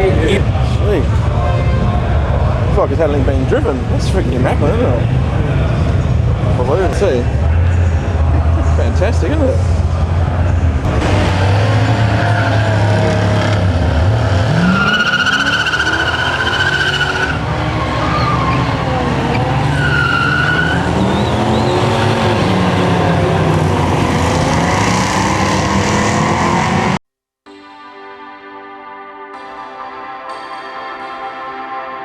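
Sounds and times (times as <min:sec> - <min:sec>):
car engine revving: 0:00.0 - 0:27.0
tyres squealing: 0:14.4 - 0:24.2
music: 0:27.5 - 0:32.0.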